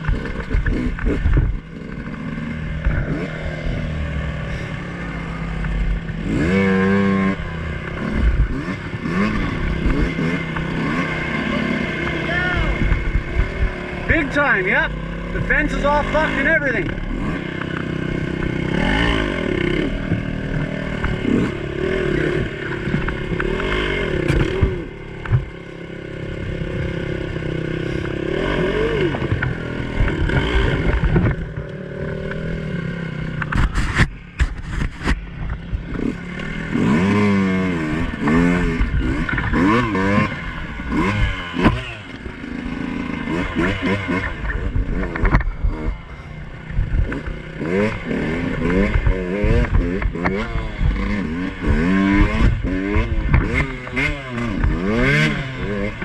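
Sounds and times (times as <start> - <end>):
dirt bike engine revving: 0.0 - 56.0
sharp knocks and clatter: 29.1 - 32.4, 43.6 - 45.9, 46.7 - 55.2.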